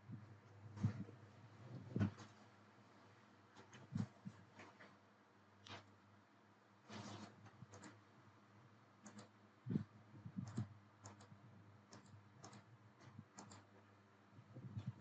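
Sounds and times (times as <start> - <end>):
faint low hum: 0.0 - 15.0
computer mouse clicking: 7.2 - 8.0, 9.0 - 13.8.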